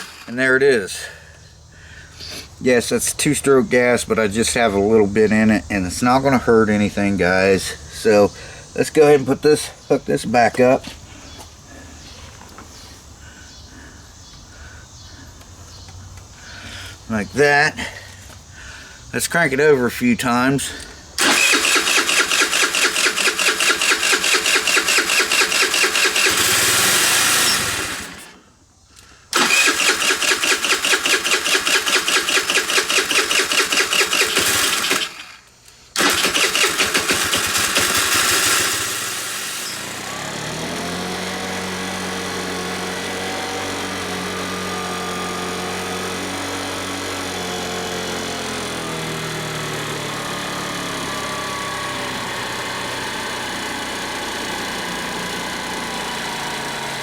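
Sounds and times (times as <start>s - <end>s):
scooter engine cranking: 0.0s - 1.4s, 20.6s - 28.5s, 29.3s - 57.0s
scooter engine idling: 0.0s - 2.4s, 20.6s - 28.4s, 29.3s - 57.0s.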